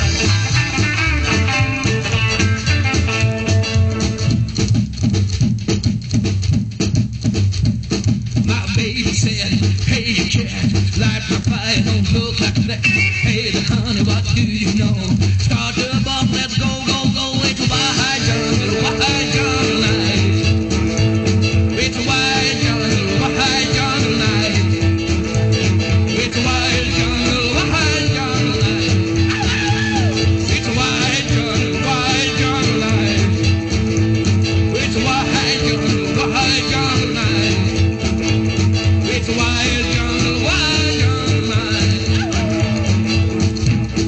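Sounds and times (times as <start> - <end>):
guitar solo: 0.0 - 4.3, 29.1 - 30.5
rockabilly band playing: 0.0 - 44.0.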